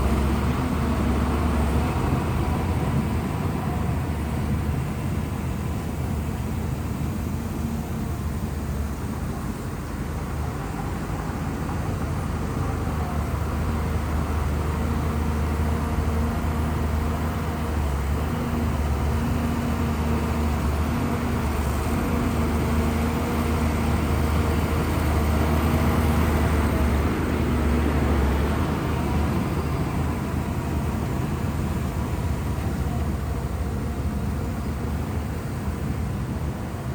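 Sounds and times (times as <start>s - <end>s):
bulldozer diesel engine running: 0.0s - 36.9s.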